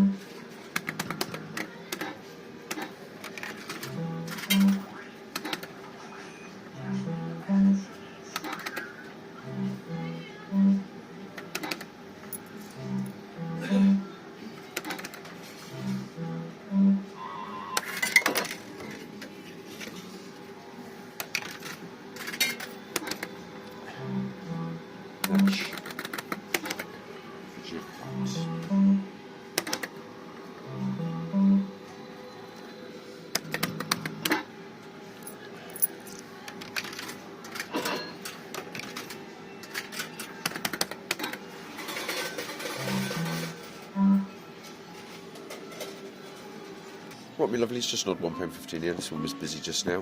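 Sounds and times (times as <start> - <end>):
arcade hum: 0.0 - 50.0
short electronic tones: 15.8 - 17.8, 28.1 - 29.1, 30.6 - 31.8, 42.8 - 44.4.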